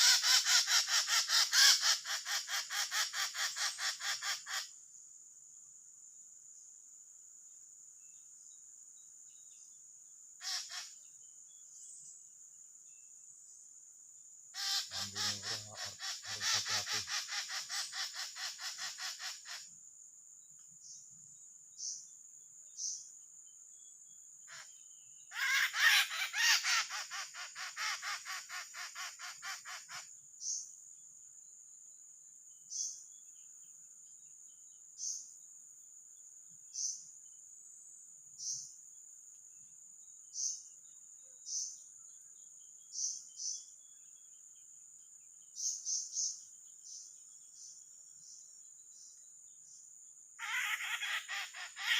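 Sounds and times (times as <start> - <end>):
bird screeching distress calls: 0.0 - 4.6, 10.4 - 10.9, 14.6 - 19.6, 25.3 - 30.0, 50.4 - 51.9
high insect whine: 0.0 - 51.9.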